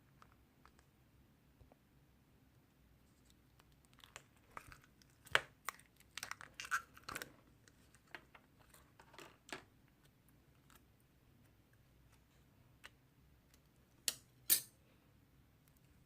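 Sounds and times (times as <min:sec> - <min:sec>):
crinkling and tearing: 0:03.0 - 0:09.6.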